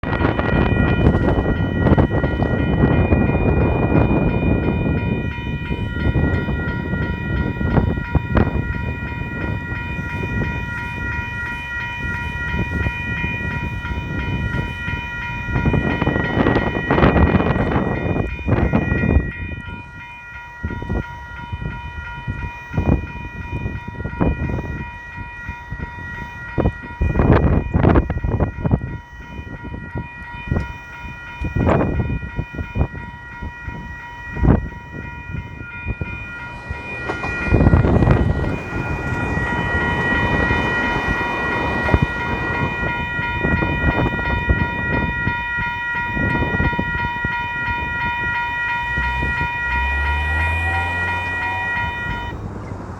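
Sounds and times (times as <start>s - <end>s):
level crossing warning bells: 0.0s - 52.9s
train wheels knocking on rails: 34.3s - 49.5s.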